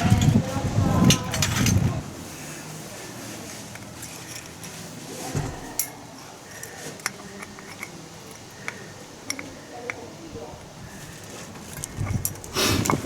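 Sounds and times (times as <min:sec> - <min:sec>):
metal tools clinking: 0:03.6 - 0:04.8, 0:05.6 - 0:09.6.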